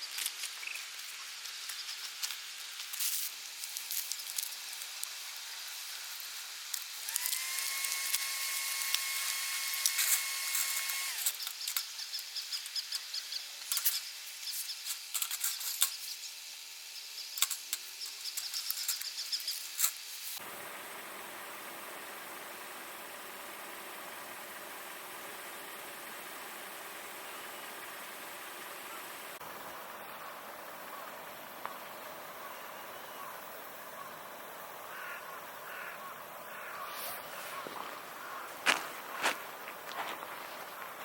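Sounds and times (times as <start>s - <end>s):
campfire crackling: 0.0s - 9.9s.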